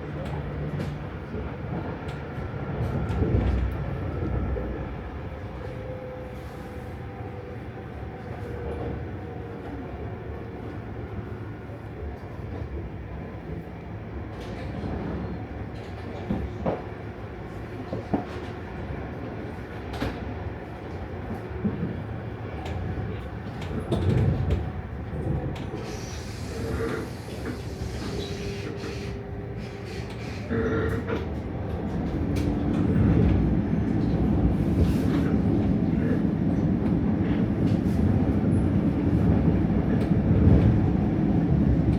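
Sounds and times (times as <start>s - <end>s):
train rumbling on rails: 0.0s - 41.9s.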